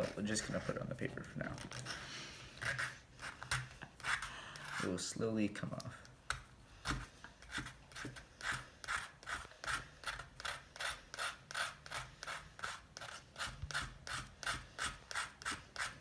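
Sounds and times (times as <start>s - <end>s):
knife scraping a matchbox: 1.6s - 5.0s, 7.3s - 16.0s.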